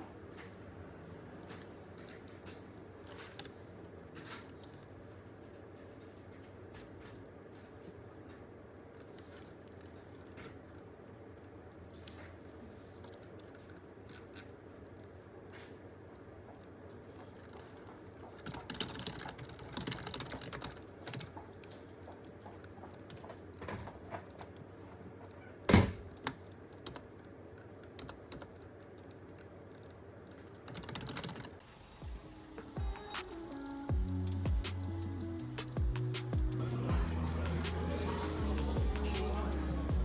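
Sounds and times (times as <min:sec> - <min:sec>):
computer keyboard typing: 0:26.2 - 0:31.6
music: 0:32.0 - 0:40.0.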